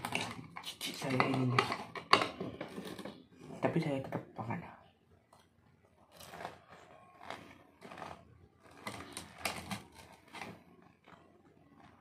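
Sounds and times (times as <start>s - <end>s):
chewing crunchy fritter: 5.2s - 12.0s.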